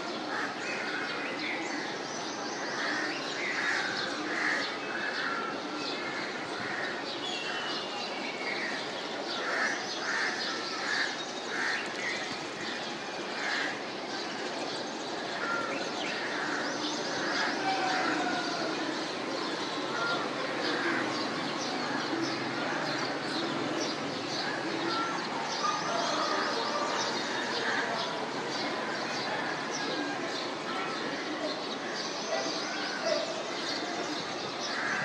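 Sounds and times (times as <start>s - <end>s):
steady outdoor hiss: 0.0s - 35.0s
birds calling: 8.6s - 35.0s.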